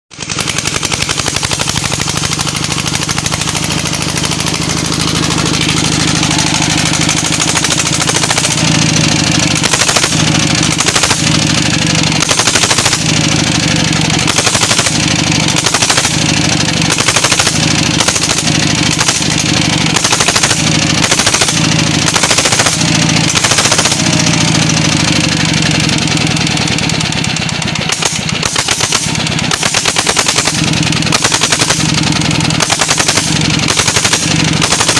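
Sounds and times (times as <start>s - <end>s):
diesel engine popping exhaust: 0.1s - 34.9s.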